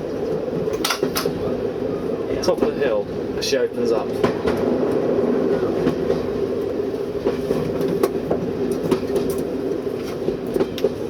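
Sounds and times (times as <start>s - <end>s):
train mechanical drone: 0.0s - 11.0s.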